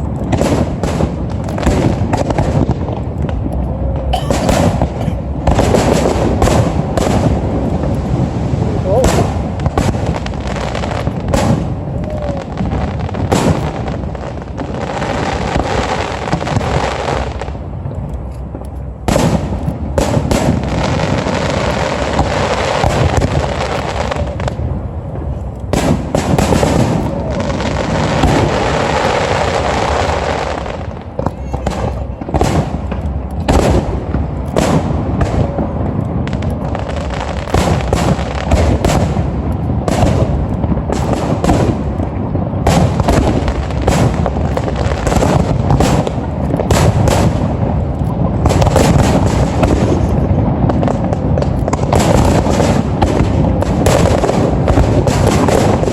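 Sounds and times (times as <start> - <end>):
steady background din: 0.0 - 14.9
fireworks bangs and crackles: 0.0 - 55.9.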